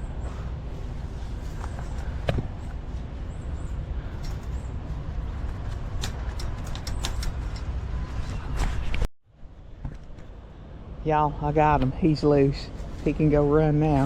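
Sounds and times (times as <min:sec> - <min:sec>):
wire trap clicking and rattling: 0:05.7 - 0:07.7.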